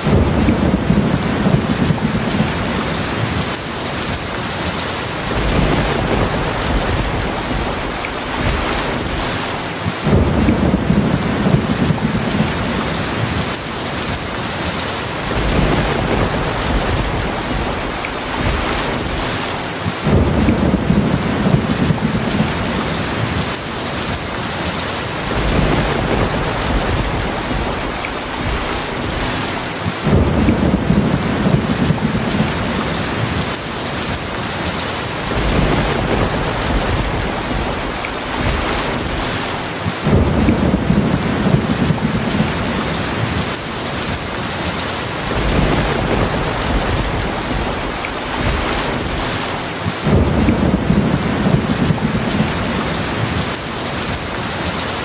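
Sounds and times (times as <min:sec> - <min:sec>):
low thunder rumbling: 0:00.0 - 0:54.8
heavy rain falling: 0:00.0 - 0:55.0.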